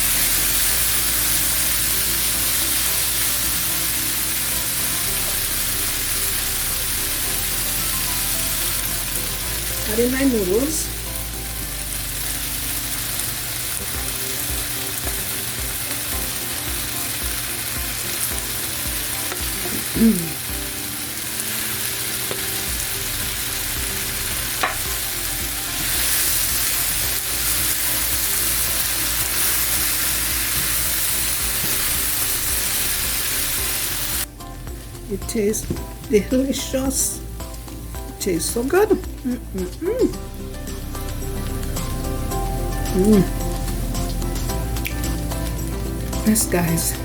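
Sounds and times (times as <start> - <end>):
food sizzling in a pot: 0.0 - 47.0.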